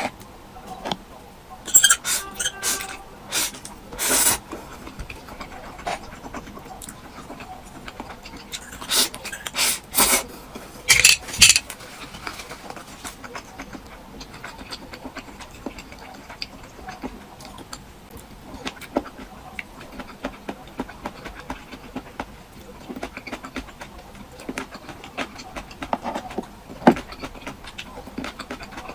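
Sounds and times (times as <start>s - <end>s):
soft chewing clicks: 4.5s - 9.6s, 12.2s - 28.9s.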